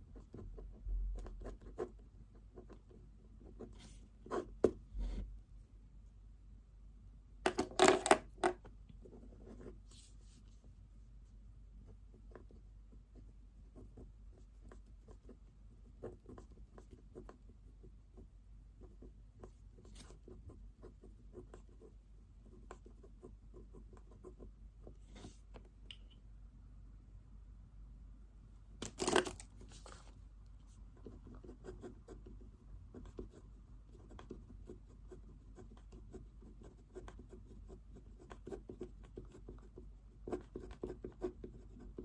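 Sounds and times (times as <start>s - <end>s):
pen scratching on paper: 0.1s - 5.2s, 9.0s - 10.4s, 11.8s - 25.5s, 30.9s - 42.0s.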